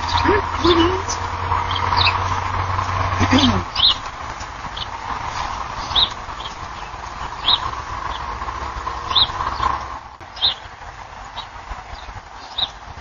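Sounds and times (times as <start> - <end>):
bird chirping: 0.0 - 8.4, 9.0 - 12.8
low outdoor rumble: 0.0 - 13.0.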